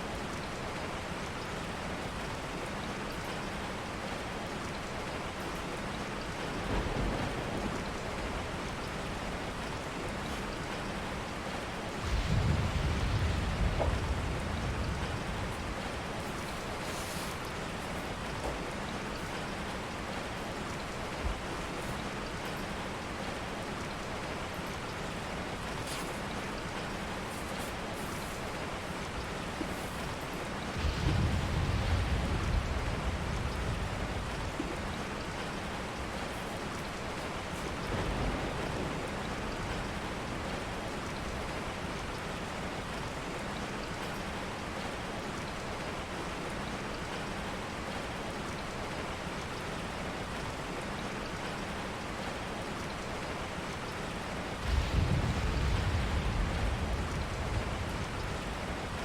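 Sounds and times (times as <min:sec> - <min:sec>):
steady rain hiss: 0:00.0 - 0:59.0
low rumble: 0:54.6 - 0:59.0.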